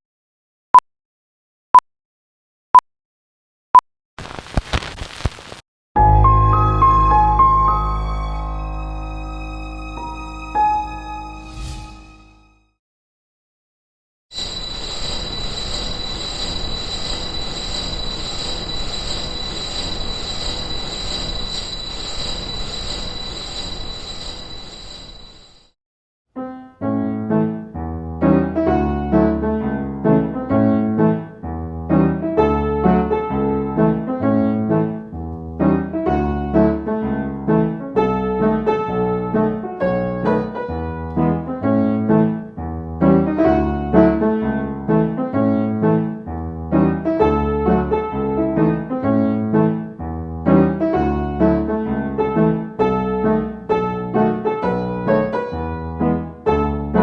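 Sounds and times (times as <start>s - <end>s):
piano music: 6.0s - 12.6s, 26.4s - 57.0s.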